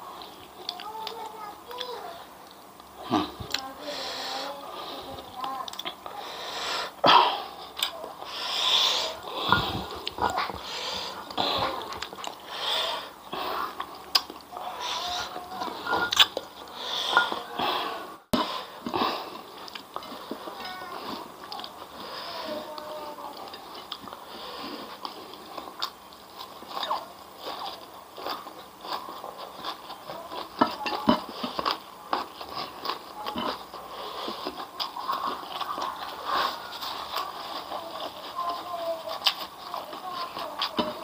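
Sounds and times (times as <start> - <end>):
person chewing food: 0.0 - 41.0
wet mouth noises: 2.9 - 4.3
small crunches: 18.8 - 41.0.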